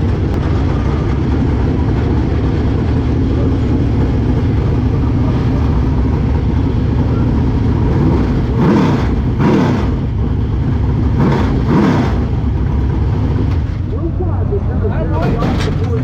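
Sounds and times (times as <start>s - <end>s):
engine revving: 0.0s - 13.8s
race car engines running: 0.0s - 16.0s.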